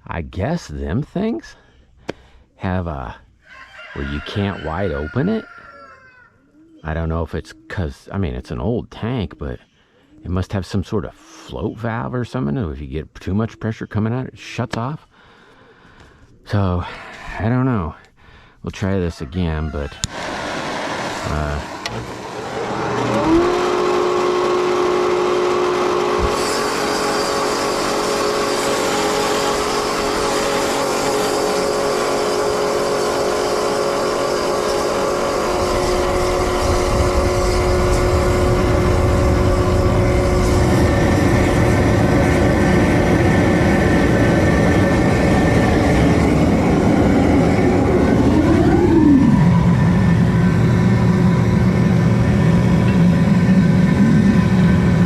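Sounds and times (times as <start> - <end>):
propane burner hum and hiss: 20.0 - 55.0
steady tone: 34.8 - 55.0
low rumble: 35.5 - 55.0.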